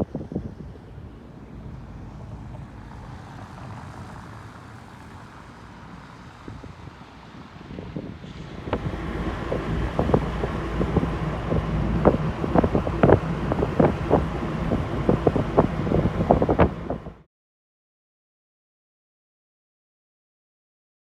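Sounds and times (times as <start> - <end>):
wind buffeting microphone: 0.0 - 4.4, 6.3 - 17.2
sharp knocks and crackles: 8.6 - 17.1.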